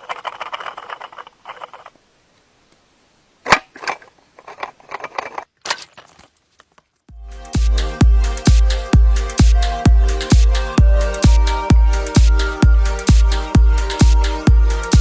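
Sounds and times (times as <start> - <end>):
sharp clicks and light rattles: 0.0 - 2.0
electronic dance music: 7.4 - 15.0.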